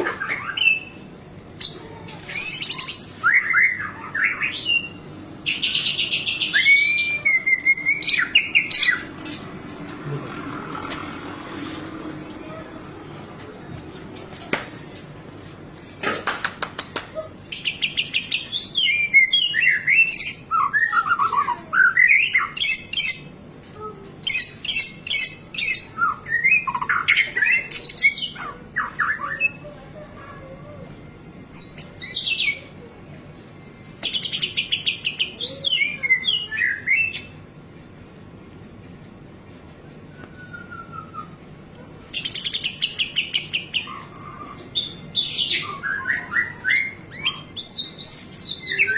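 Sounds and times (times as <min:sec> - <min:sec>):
bird singing varied song: 0:00.0 - 0:09.6, 0:17.4 - 0:23.4, 0:24.2 - 0:32.8, 0:34.0 - 0:37.4, 0:40.1 - 0:48.9.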